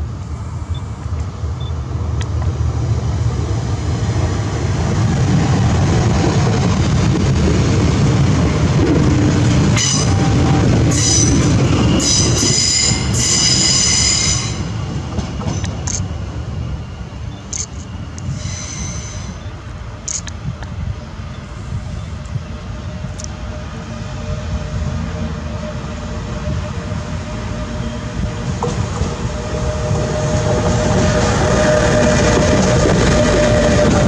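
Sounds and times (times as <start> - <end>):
train wheels rumbling on rail: 0.0 - 34.0
high-pitched wheel squeal: 9.8 - 14.7, 15.4 - 19.5.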